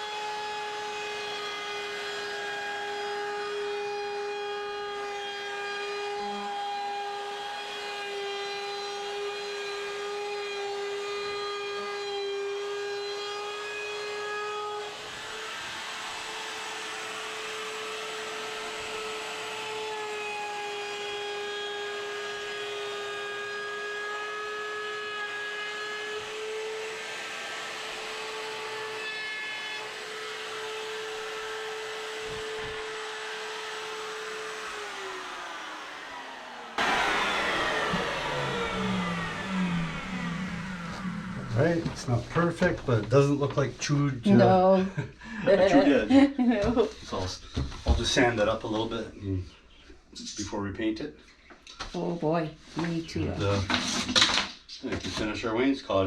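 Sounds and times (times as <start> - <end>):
electric router whine: 0.0 - 43.5
router bit cutting wood: 0.0 - 44.8.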